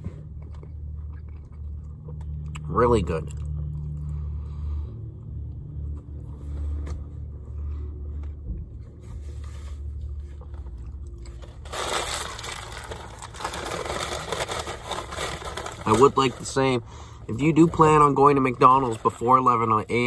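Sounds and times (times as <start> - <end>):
chewing and biting food: 0.0 - 4.2
low steady rumble: 0.0 - 20.0
rustling scrape: 9.0 - 10.4.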